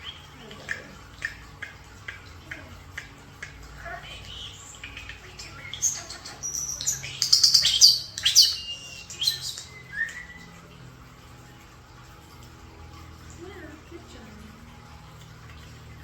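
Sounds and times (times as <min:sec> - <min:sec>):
birds chirping and whistling: 0:00.0 - 0:00.4, 0:04.1 - 0:10.7.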